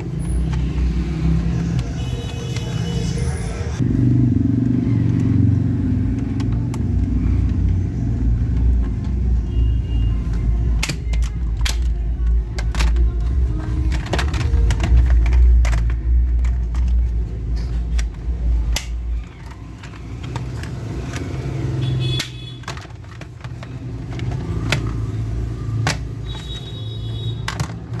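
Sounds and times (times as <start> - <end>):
sharp clicks and knocks: 10.2 - 28.0.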